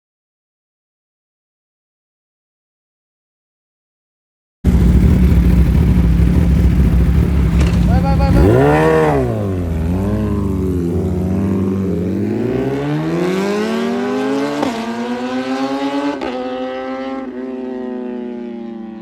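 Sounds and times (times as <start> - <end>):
motorcycle engine accelerating: 4.6 - 19.0.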